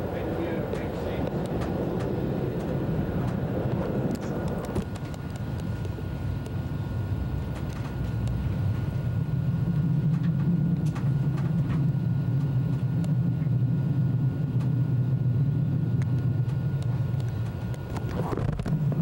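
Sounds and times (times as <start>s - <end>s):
train rumble from inside: 0.0s - 19.0s
faint clicks: 0.7s - 6.6s.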